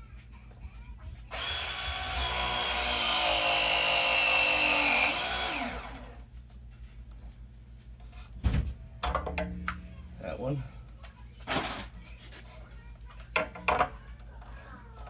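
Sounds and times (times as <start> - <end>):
press tool motor whining: 1.3 - 6.2.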